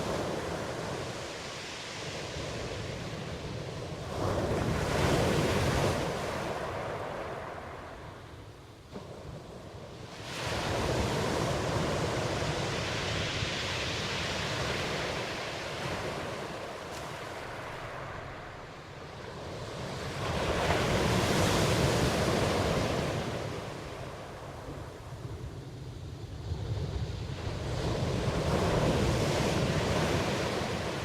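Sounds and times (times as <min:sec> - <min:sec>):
ocean waves surging and washing back: 0:00.0 - 0:31.0.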